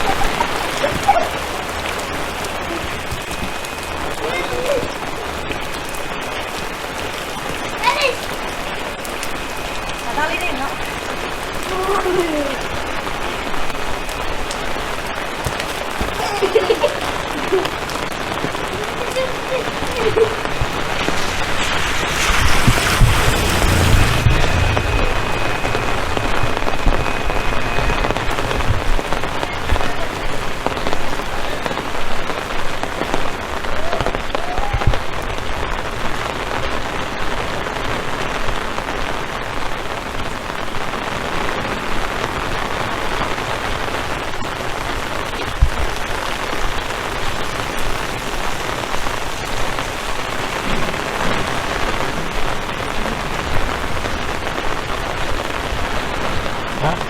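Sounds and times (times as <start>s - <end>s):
steady rain hiss: 0.0s - 57.0s
low thumps: 20.4s - 30.9s.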